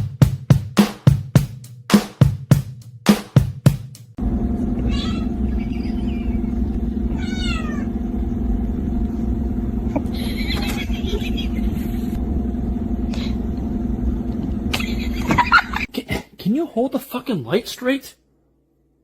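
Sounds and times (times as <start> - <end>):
steady low hum: 3.8 - 16.8
cat meowing: 4.7 - 8.0.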